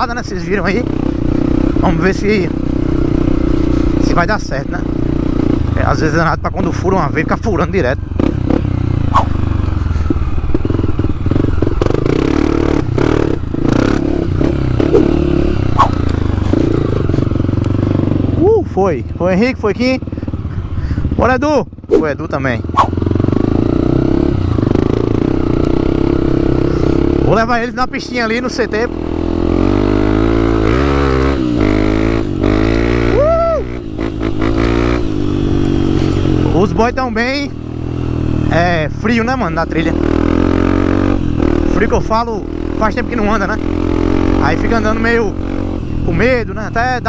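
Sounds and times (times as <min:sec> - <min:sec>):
dirt bike engine running: 0:00.0 - 0:47.0
bike rattles and knocks: 0:13.6 - 0:18.0.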